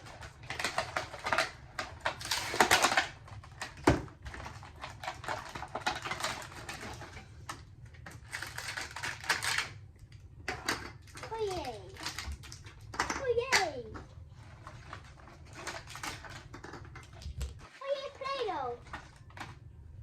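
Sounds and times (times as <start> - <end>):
plastic packaging crinkling: 0.0 - 9.8, 14.5 - 17.6.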